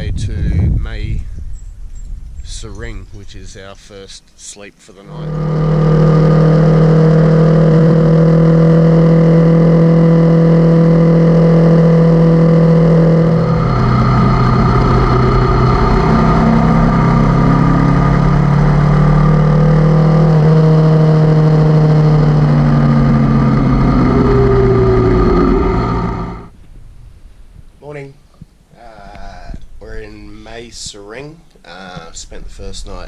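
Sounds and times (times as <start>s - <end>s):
motorcycle engine droning: 5.0s - 26.6s.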